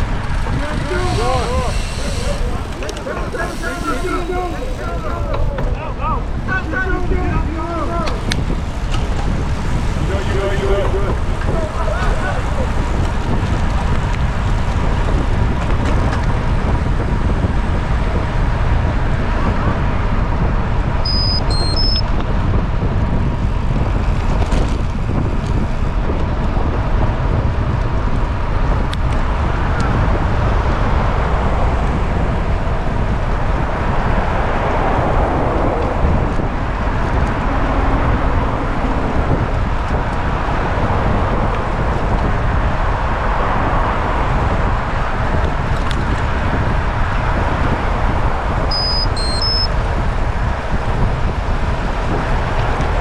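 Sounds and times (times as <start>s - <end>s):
wind and road noise: 0.0s - 53.0s
short high beeps: 21.1s - 22.1s, 48.7s - 49.7s.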